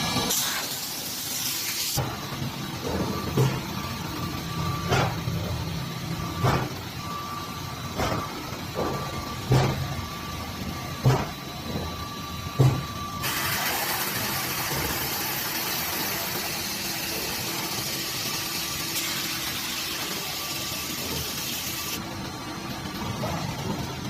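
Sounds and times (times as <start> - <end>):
machine knock: 12.6 - 12.9.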